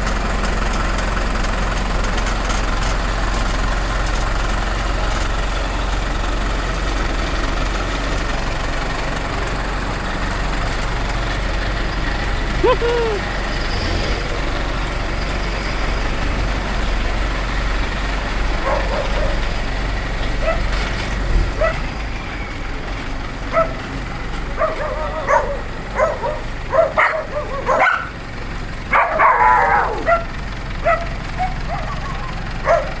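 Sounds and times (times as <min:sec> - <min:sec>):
tractor engine running: 0:00.0 - 0:33.0
dog barking and yipping: 0:18.6 - 0:19.4, 0:20.4 - 0:20.8, 0:21.5 - 0:21.9, 0:23.5 - 0:23.8, 0:24.5 - 0:28.2, 0:28.9 - 0:33.0.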